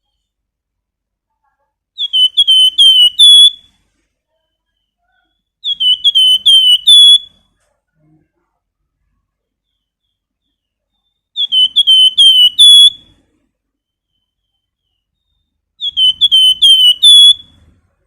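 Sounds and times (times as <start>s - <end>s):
songbird whistling: 2.0s - 3.8s, 4.4s - 7.4s, 9.6s - 13.2s, 13.8s - 17.8s.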